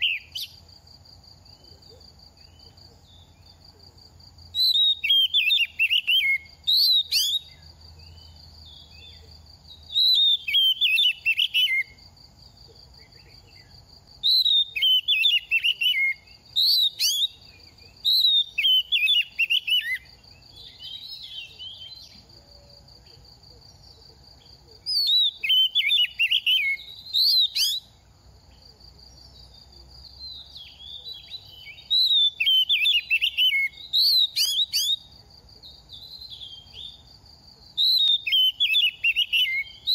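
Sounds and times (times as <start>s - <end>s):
bird singing whistled notes: 0.0s - 0.6s, 4.5s - 12.1s, 13.0s - 23.9s, 24.8s - 28.0s, 29.2s - 37.1s, 37.8s - 39.9s.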